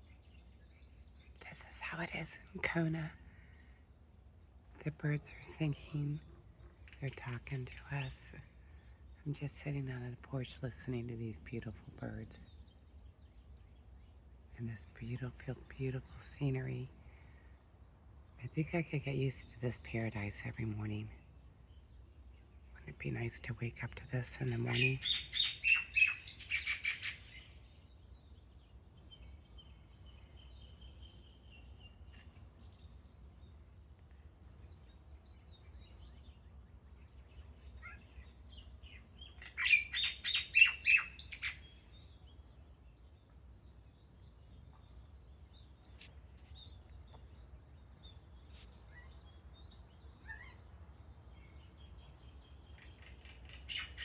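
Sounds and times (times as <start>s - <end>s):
birds chirping: 0.0s - 54.0s
bird harsh repeated calls: 24.8s - 27.5s, 39.2s - 41.8s.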